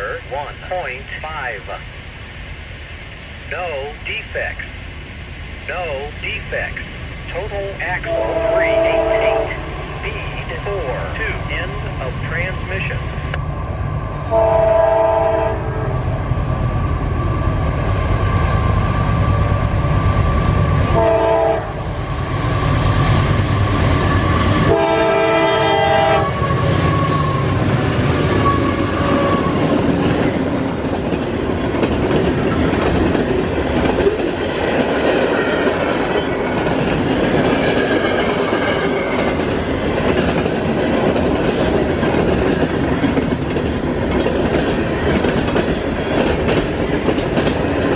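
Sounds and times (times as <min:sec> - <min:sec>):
deep locomotive engine rumble: 0:00.0 - 0:47.9
rail cars clattering: 0:05.7 - 0:14.8, 0:17.0 - 0:47.9
train horn blasts: 0:08.1 - 0:09.7, 0:14.3 - 0:16.0, 0:20.9 - 0:22.0, 0:24.6 - 0:27.5.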